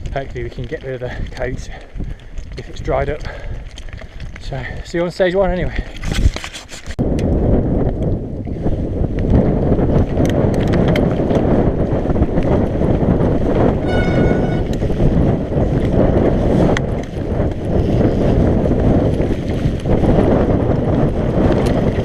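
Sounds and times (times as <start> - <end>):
bike rattling clicks: 0.0 - 4.7, 9.1 - 13.8, 15.6 - 22.0
bike tyre and trail noise: 0.0 - 22.0
wind buffeting microphone: 0.0 - 22.0
high-pitched squeal: 13.8 - 14.8.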